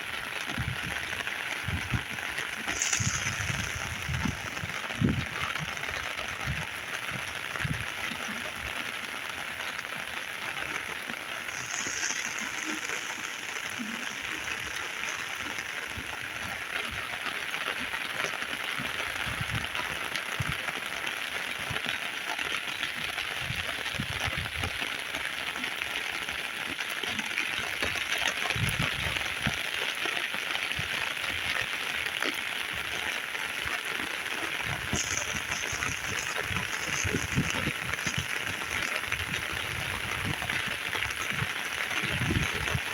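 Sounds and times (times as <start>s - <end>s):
heavy rain hissing: 0.0s - 42.9s.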